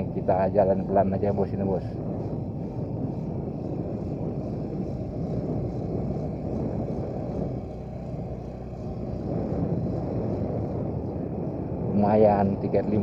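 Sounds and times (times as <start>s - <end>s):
motorcycle engine at low speed: 0.0s - 13.0s.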